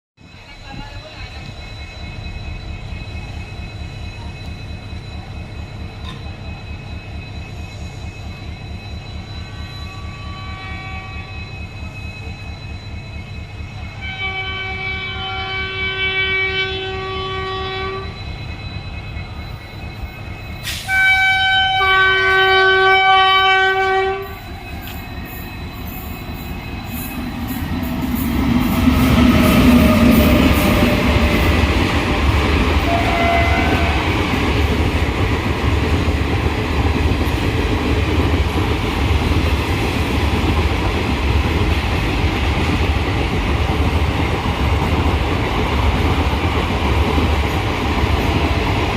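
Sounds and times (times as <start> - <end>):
train rumbling: 0.2 - 48.9
train horn blasts: 9.4 - 11.6, 14.0 - 18.2, 20.7 - 24.6, 32.8 - 34.2.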